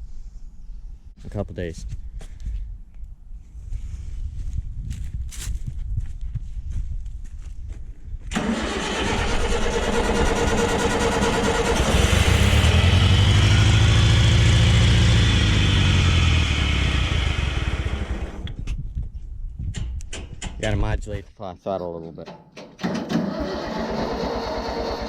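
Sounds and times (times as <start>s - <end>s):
tractor starter cranking: 8.3s - 13.9s, 22.4s - 25.0s
tractor engine running loudly: 8.3s - 18.5s, 23.3s - 25.0s.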